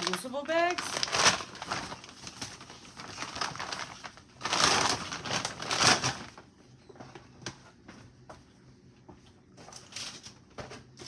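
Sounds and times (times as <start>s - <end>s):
grocery bags rustling and crinkling: 0.0s - 6.5s, 9.6s - 11.0s.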